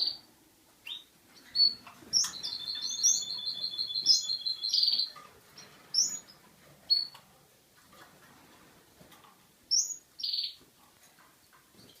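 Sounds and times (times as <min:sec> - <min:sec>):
canary chirping: 0:00.0 - 0:07.2, 0:09.7 - 0:10.6, 0:11.2 - 0:12.0.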